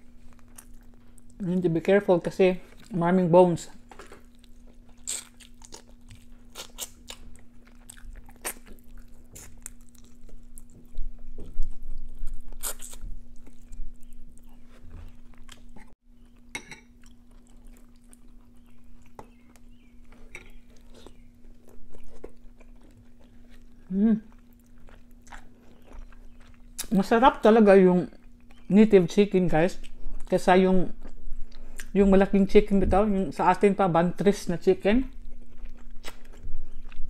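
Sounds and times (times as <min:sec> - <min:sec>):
steady low hum: 0:00.0 - 0:37.0
person chewing bony chicken: 0:00.1 - 0:01.4, 0:03.9 - 0:26.9, 0:35.1 - 0:37.0.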